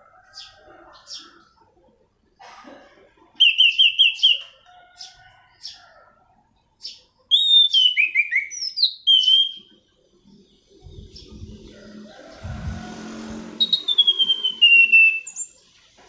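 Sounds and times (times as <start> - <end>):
thrush singing whistled notes: 3.4 - 4.6, 7.3 - 9.8, 10.9 - 15.6
low rumble: 10.7 - 14.6.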